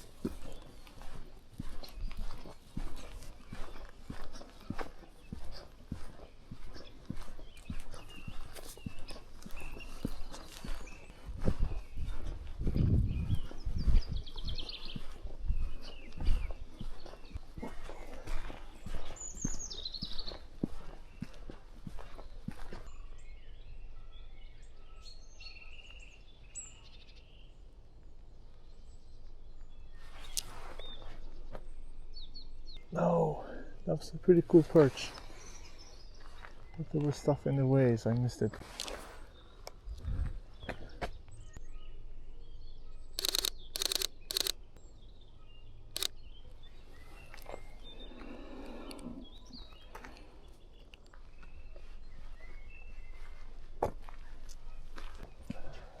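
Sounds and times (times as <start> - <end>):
wild birds singing and calling: 0.0 - 53.6
camera shutter clicks: 43.2 - 44.6.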